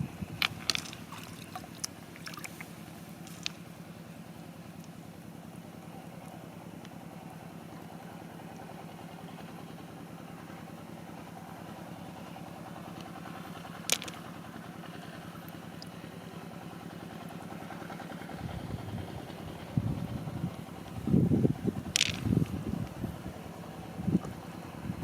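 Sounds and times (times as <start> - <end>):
motor running steadily: 0.0 - 25.0
low rumble: 18.3 - 25.0.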